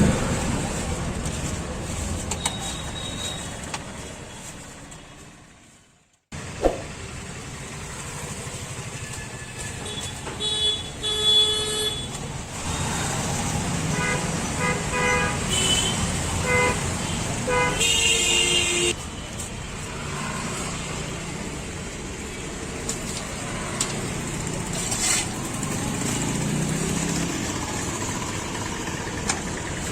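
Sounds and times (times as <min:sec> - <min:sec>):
road traffic passing: 0:00.0 - 0:29.9
vehicle horns honking: 0:09.1 - 0:12.9, 0:13.9 - 0:19.0.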